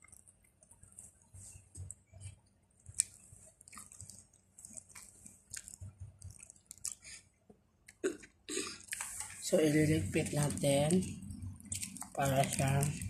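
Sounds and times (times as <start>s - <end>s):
person chewing food: 0.0s - 7.3s, 7.9s - 9.4s, 11.1s - 13.0s
wet mouth clicks and smacks: 2.9s - 7.1s.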